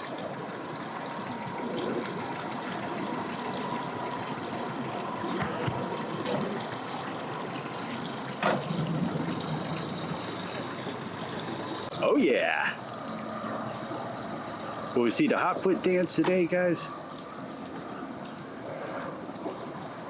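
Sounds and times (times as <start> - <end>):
engine idling: 0.0 - 17.1
water noise: 0.0 - 20.0.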